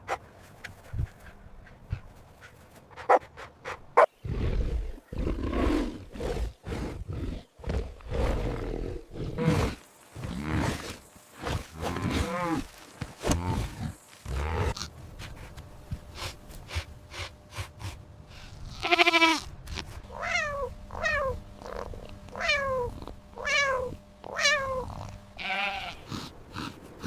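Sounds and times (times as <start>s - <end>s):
big cat roaring and growling: 4.2s - 10.9s.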